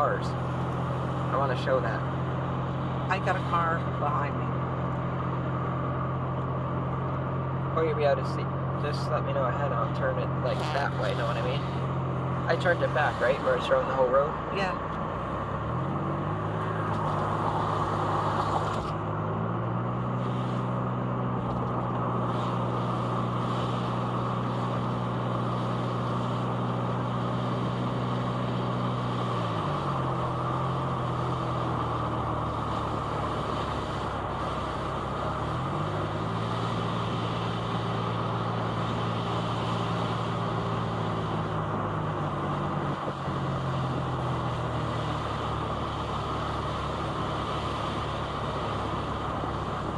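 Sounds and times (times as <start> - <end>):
car engine running: 0.0 - 49.9
tyre and road noise: 0.0 - 49.9.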